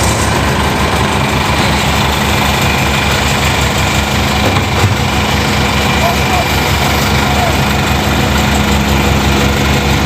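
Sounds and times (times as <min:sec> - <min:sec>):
heavy engine idling: 0:00.0 - 0:10.0.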